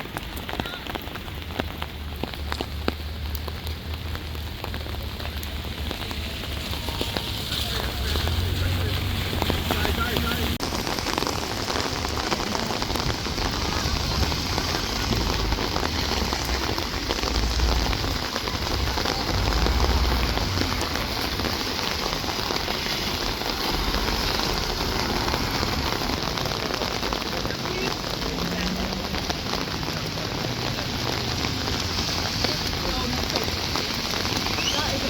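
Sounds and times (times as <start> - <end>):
steady rain patter: 0.0 - 35.0
low rumble: 12.0 - 26.8.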